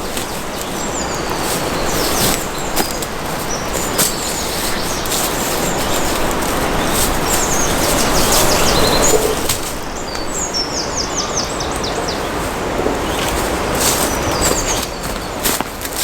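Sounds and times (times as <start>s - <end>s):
rushing noise on microphone: 0.0s - 11.2s
songbird chirping: 0.0s - 15.6s.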